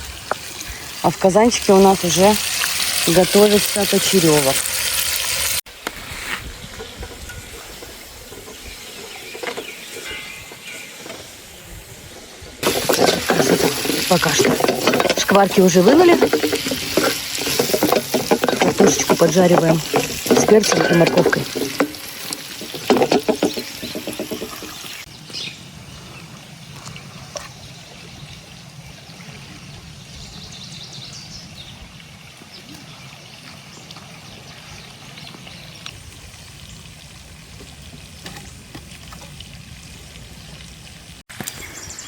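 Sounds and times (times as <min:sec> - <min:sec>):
vegetables sizzling in oil: 0:00.0 - 0:25.1.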